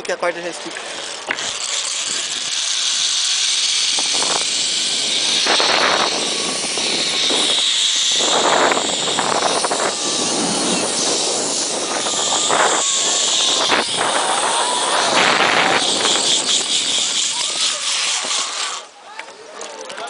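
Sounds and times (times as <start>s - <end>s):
zip-line pulleys whirring on cable: 0.0s - 19.1s.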